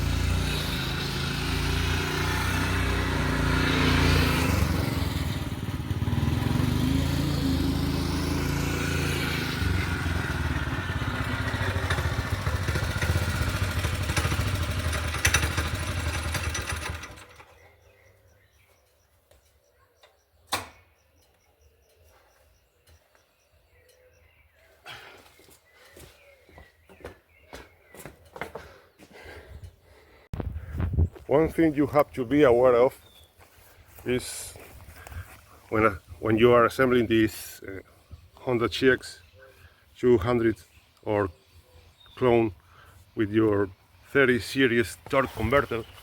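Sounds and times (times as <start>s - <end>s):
small engine running hard: 0.0s - 17.7s
sharp click: 20.5s - 20.9s.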